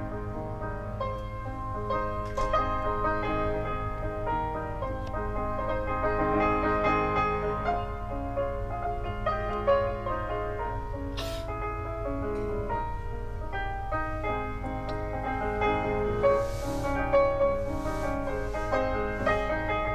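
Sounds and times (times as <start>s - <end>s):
piano melody: 0.0s - 19.9s
steady low hum: 7.8s - 19.9s.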